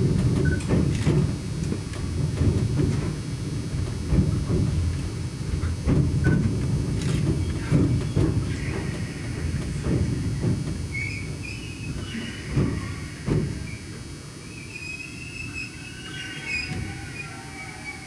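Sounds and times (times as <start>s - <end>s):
train rumbling at low speed: 0.0s - 18.0s
brief high squeals: 11.0s - 13.8s, 14.4s - 18.0s.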